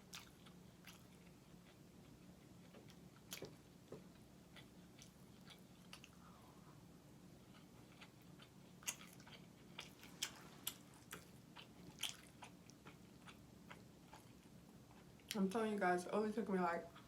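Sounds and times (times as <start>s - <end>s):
faint low hum: 0.0s - 17.0s
wet chewing mouth clicks: 7.6s - 15.4s.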